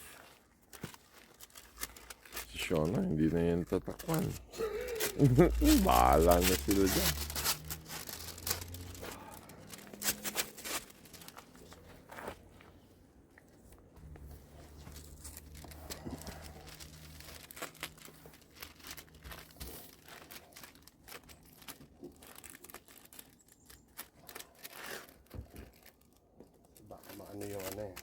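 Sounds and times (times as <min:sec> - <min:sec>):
plastic crinkling and rustling: 0:00.0 - 0:28.0
tape tearing and peeling: 0:03.6 - 0:11.9, 0:14.0 - 0:28.0.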